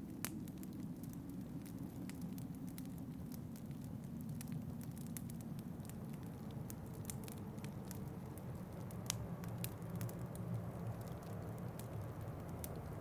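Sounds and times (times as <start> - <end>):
low rumble of wind: 0.0 - 13.0
wood fire crackling: 0.0 - 13.0.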